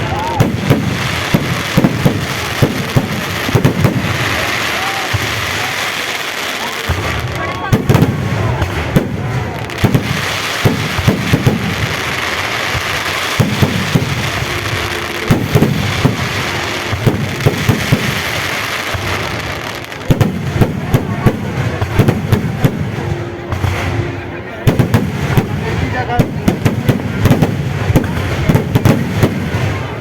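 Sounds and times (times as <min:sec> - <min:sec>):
fireworks crackling hiss: 0:00.0 - 0:30.0
fireworks sharp bangs: 0:00.0 - 0:30.0.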